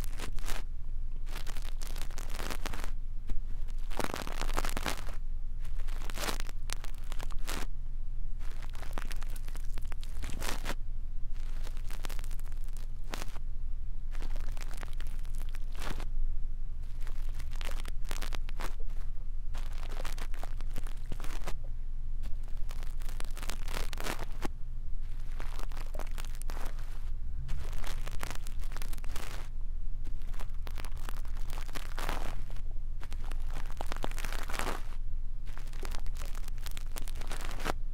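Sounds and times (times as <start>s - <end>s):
brush scratching microphone: 0.0s - 0.7s, 1.3s - 7.7s, 8.4s - 10.8s, 16.8s - 21.6s, 22.3s - 37.8s
steady low hum: 0.0s - 37.9s.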